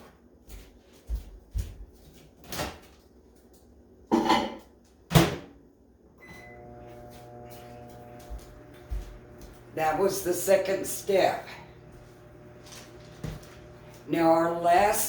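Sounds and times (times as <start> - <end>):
microwave beep: 6.2 - 9.5
microwave oven humming: 6.2 - 15.0.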